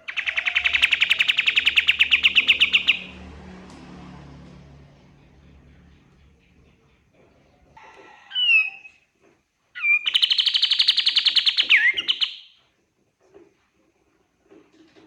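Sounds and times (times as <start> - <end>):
songbird singing: 0.0 - 3.7, 4.6 - 9.0, 9.8 - 12.6.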